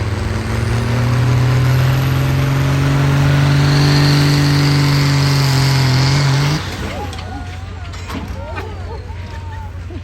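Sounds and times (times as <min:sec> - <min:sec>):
diesel engine revving: 0:00.0 - 0:07.9.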